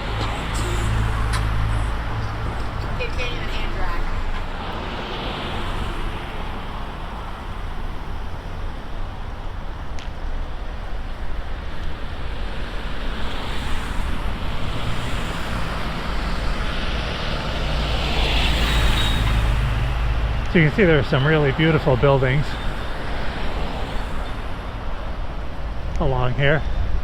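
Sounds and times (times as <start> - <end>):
road traffic noise: 0.0 - 27.0
wind buffeting microphone: 0.0 - 27.0.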